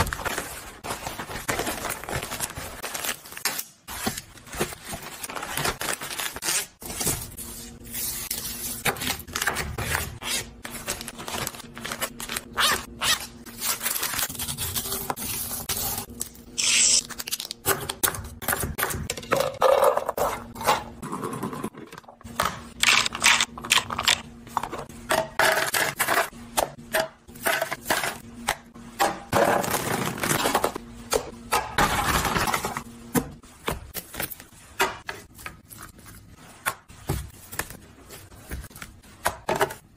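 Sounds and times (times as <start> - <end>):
packaging rustling: 0.0 - 7.0.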